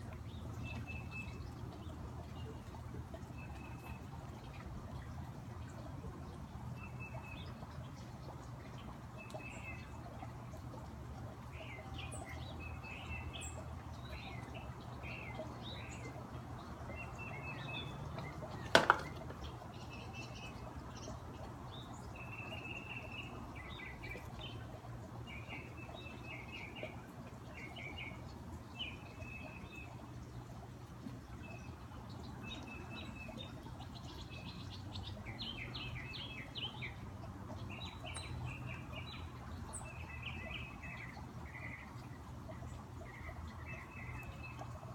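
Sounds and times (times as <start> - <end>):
fountain running water: 0.0 - 44.9
songbirds chirping: 0.0 - 44.9
sharp knock: 18.7 - 19.2.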